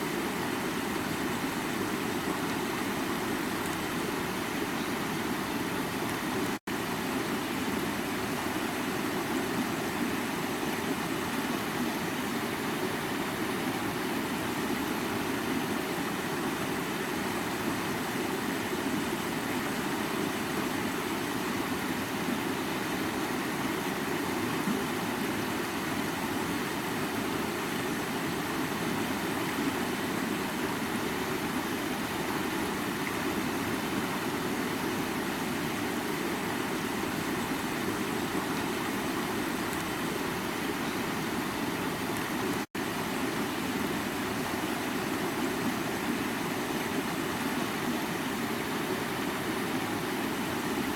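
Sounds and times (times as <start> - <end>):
creek water flowing: 0.0 - 50.9.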